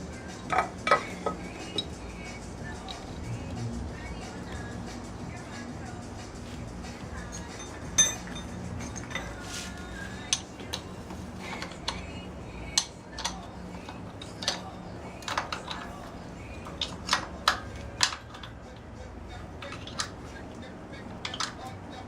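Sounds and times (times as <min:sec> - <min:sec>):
metal tools clinking: 0:00.4 - 0:03.2, 0:07.0 - 0:18.8, 0:19.5 - 0:21.8.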